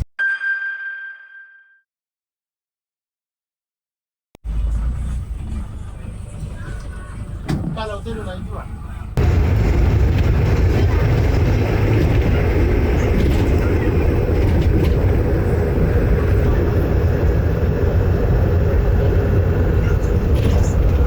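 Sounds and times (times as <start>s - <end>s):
vehicle engine and road noise: 4.4s - 21.0s.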